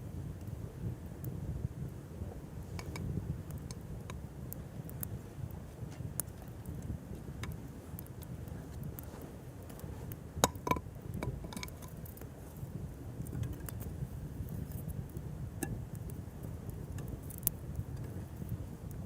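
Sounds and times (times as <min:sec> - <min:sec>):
low steady rumble: 0:00.0 - 0:19.0
wood fire crackling: 0:00.0 - 0:19.0.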